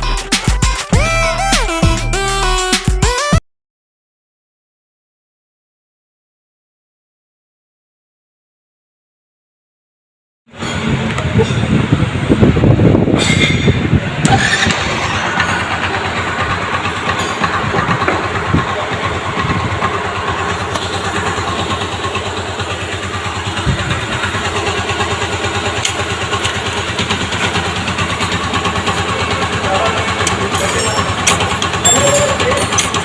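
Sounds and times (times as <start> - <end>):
motorcycle engine idling: 14.8 - 33.0.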